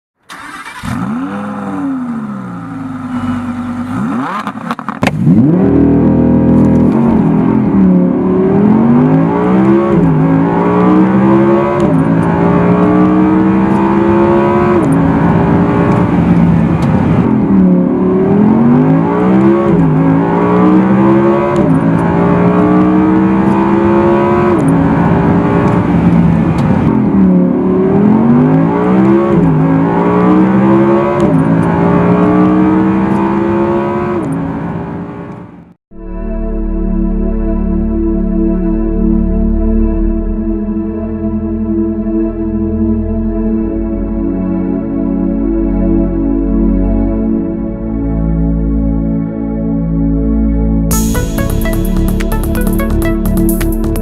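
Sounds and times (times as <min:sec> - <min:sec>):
car engine revving: 0:00.3 - 0:35.6.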